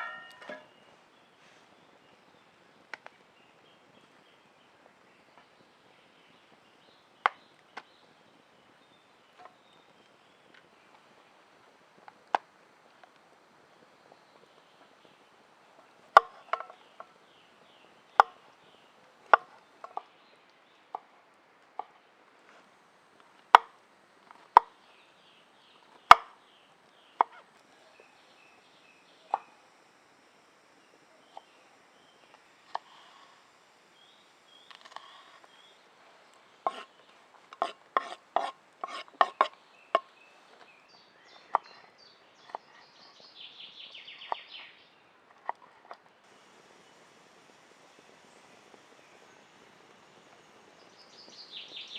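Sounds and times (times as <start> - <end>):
faint bird chirps: 0.0 - 11.8, 13.1 - 22.3, 24.3 - 37.4, 39.2 - 45.2, 46.3 - 51.9
scratchy rasp: 36.7 - 39.6.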